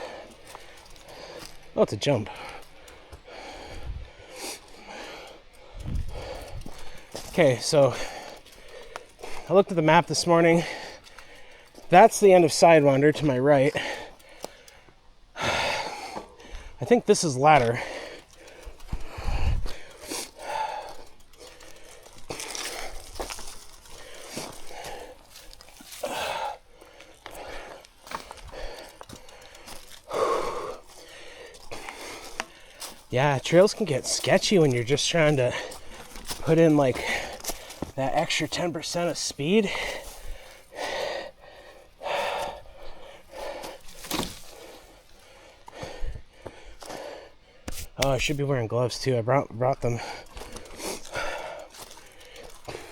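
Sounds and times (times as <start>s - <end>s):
person breathing hard: 0.0s - 9.5s, 10.5s - 12.0s, 13.7s - 16.8s, 17.6s - 38.8s, 39.5s - 48.0s, 49.9s - 52.9s
bike tyres crunching on dirt: 0.0s - 52.9s
bike knocks and rattles: 4.6s - 14.7s, 15.6s - 41.1s, 42.2s - 46.8s.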